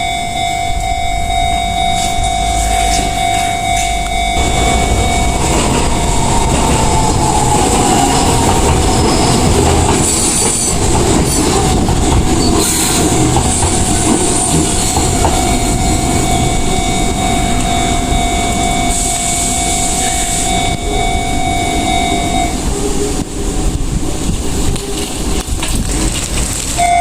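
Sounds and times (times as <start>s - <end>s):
crossing warning signal tone: 0.0s - 10.8s, 12.4s - 22.8s, 26.8s - 27.0s
train wheels rumbling over rail joints: 0.0s - 26.8s.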